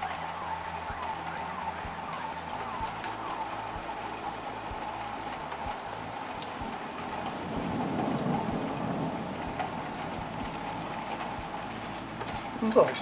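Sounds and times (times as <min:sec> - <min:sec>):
heavy rain falling: 0:00.0 - 0:13.0
low rumble of thunder: 0:01.8 - 0:13.0.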